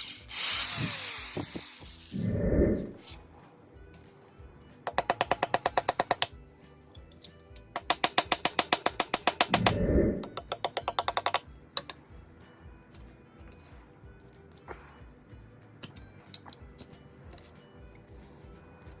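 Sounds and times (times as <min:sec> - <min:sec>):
rapid tool clicking: 0:00.0 - 0:02.2, 0:04.9 - 0:06.3, 0:07.8 - 0:11.4
power tool noise: 0:00.0 - 0:02.4.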